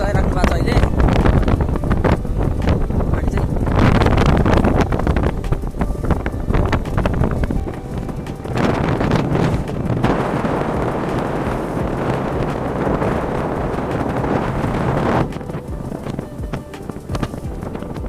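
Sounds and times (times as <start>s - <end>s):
vehicle low rumble: 0.0s - 18.0s
wind rushing over microphone: 0.0s - 18.0s.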